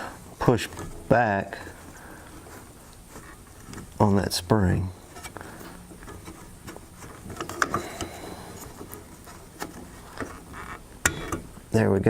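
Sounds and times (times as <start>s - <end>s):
screwdriver scraping and clicking on metal: 6.0s - 11.5s.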